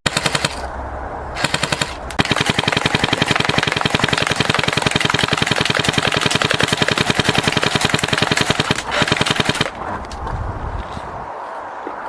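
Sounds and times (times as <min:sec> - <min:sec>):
airsoft gun firing full auto: 0:00.0 - 0:00.6, 0:01.4 - 0:09.8.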